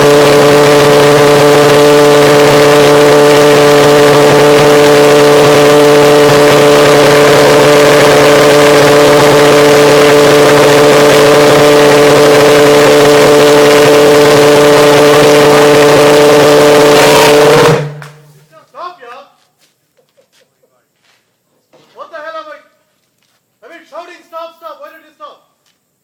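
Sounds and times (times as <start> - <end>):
pulse jet engine droning: 0.0 - 18.5.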